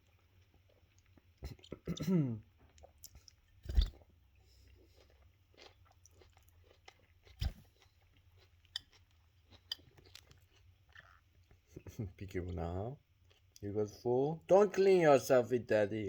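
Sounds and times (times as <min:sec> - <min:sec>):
chewing and crunching food: 0:00.0 - 0:13.7.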